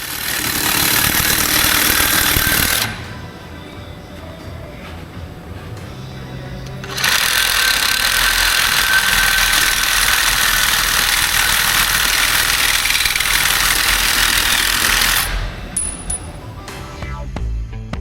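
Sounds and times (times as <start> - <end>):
power tool cutting steel: 0.0 - 3.1, 6.8 - 16.3.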